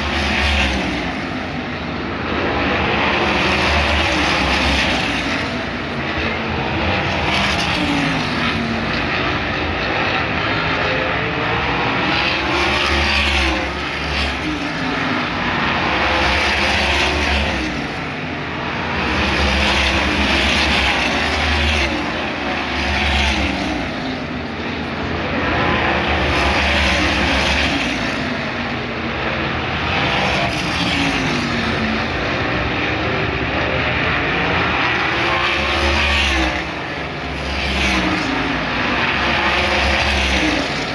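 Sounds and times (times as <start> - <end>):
race cars passing at speed: 0.0 - 40.9.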